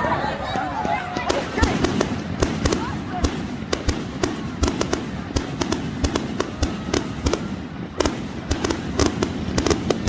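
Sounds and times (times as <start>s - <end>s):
fireworks bangs and pops: 0.7s - 10.0s.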